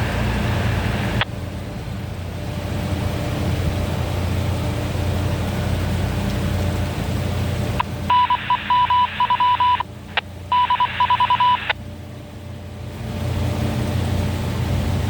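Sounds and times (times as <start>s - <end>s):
low rumble: 0.0s - 11.6s
short high electronic beeps: 8.1s - 9.8s, 10.5s - 11.7s.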